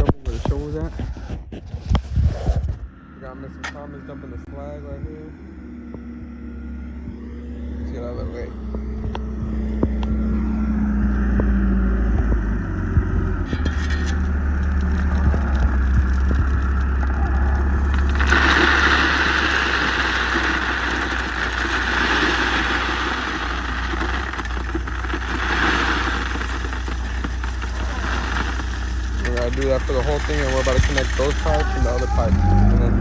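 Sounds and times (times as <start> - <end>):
heavy equipment engine running: 3.0 - 33.0
gravel pouring and rattling: 13.4 - 32.6.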